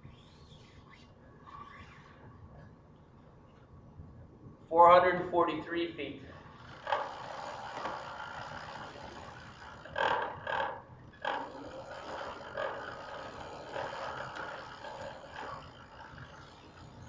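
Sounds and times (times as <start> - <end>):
drilling rig running: 6.4 - 17.0.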